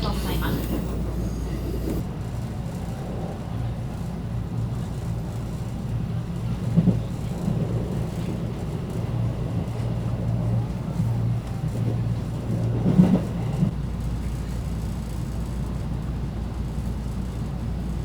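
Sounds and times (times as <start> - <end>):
train rumble and hum: 0.0 - 18.0.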